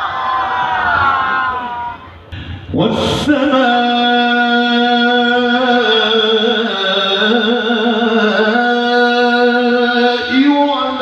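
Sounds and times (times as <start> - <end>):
man reciting melodically: 2.7 - 11.0.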